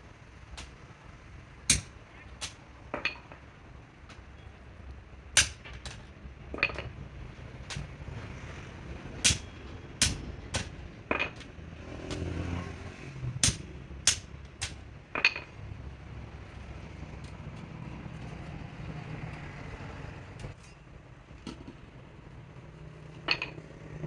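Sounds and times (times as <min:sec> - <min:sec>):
passing vehicles rumble: 0:00.0 - 0:24.0.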